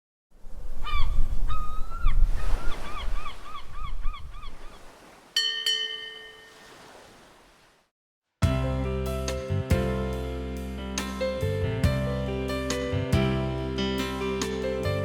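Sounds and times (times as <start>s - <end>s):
short rising-and-falling bird calls: 0.8s - 5.2s.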